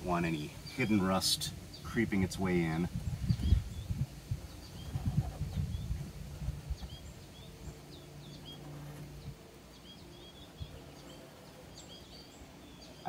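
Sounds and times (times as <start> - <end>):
low steady hum: 0.0 - 13.0
bird chirps: 3.2 - 13.0.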